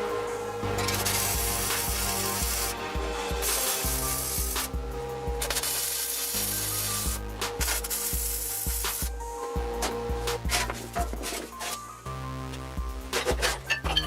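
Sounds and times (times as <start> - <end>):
music with beat and bass: 0.0 - 14.0
rasping scraping noise: 9.9 - 11.8.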